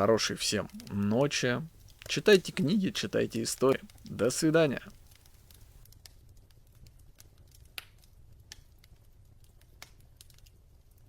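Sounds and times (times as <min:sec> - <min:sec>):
low steady hum: 0:00.0 - 0:05.8
faint fire crackling: 0:00.0 - 0:11.0.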